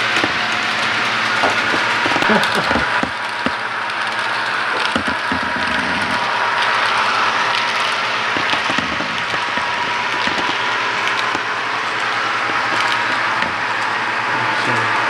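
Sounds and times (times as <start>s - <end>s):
small irregular clicks: 0.0s - 14.1s
model train rolling on track: 0.0s - 15.0s.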